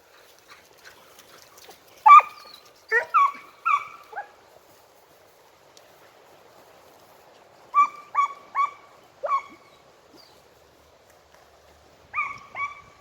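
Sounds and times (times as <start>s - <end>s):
hound yelping: 2.0s - 4.3s, 7.8s - 9.7s, 12.1s - 13.0s.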